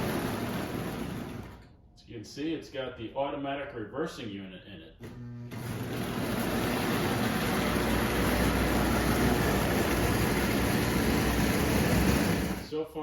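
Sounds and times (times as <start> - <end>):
toy train motor and wheel rumble: 0.0 - 1.6, 5.6 - 12.7.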